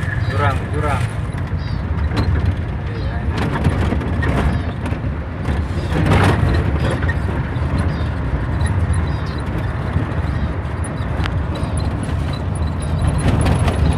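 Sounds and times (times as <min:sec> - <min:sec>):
motor vehicle low rumble: 0:00.0 - 0:13.9.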